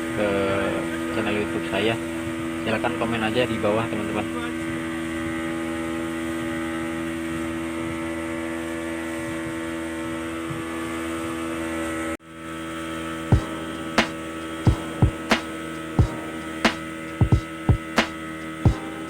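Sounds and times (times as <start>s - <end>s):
steady hum: 12.2s - 19.0s
speedboat engine droning: 12.3s - 19.0s
sharp knock: 13.4s - 16.1s.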